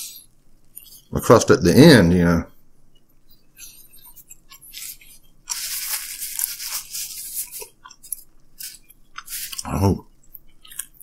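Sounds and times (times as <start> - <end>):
chewing crisp pizza crust: 3.6 - 11.0.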